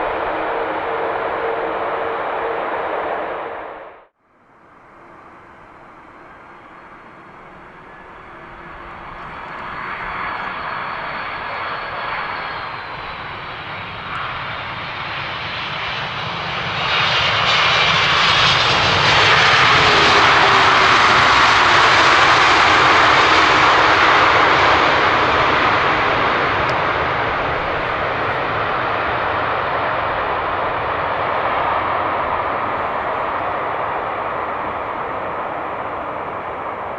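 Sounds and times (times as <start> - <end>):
thin high engine whine: 0.0 - 16.3
jet airliner engine rush: 0.0 - 36.9.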